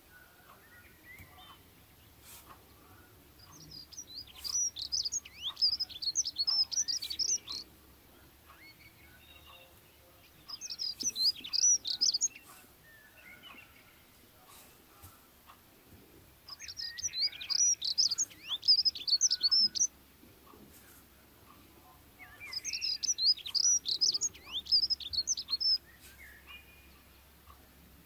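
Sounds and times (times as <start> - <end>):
songbird twittering: 3.3 - 7.7, 8.4 - 14.2, 16.4 - 20.0, 21.5 - 27.6.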